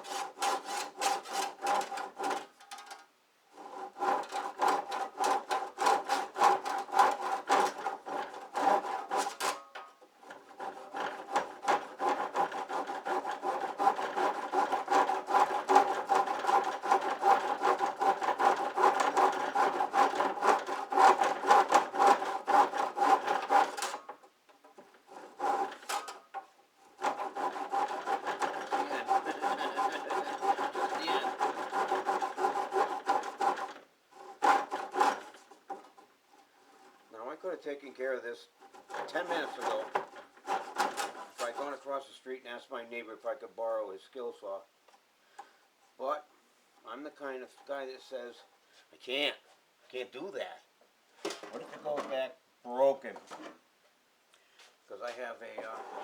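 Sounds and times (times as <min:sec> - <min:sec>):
handsaw cutting strokes: 0:00.0 - 0:02.5, 0:03.5 - 0:24.1, 0:25.1 - 0:35.9, 0:38.6 - 0:41.8, 0:55.4 - 0:56.0.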